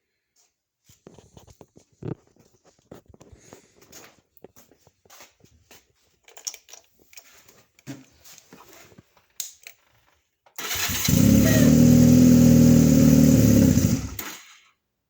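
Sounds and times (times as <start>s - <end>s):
car engine starting and running: 10.6s - 14.3s.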